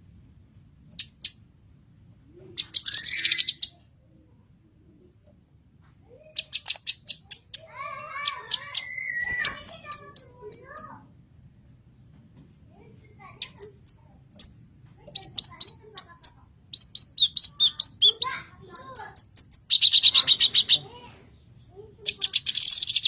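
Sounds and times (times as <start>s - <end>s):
bird singing: 2.6s - 3.8s, 6.3s - 10.9s, 15.2s - 20.9s, 22.1s - 23.0s.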